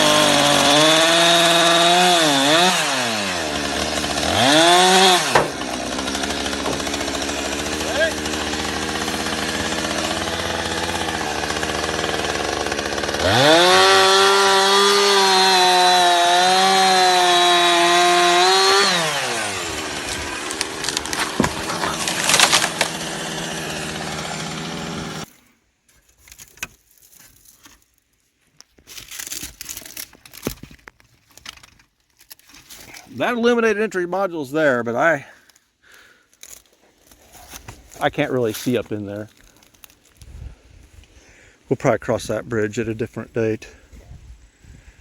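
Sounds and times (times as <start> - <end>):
chainsaw idling and revving: 0.0 - 25.3.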